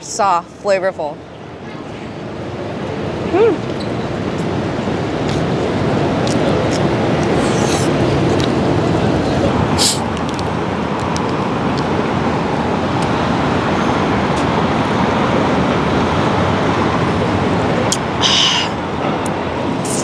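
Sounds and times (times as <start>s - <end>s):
city street traffic: 0.0s - 20.0s
short hiss: 9.8s - 10.1s.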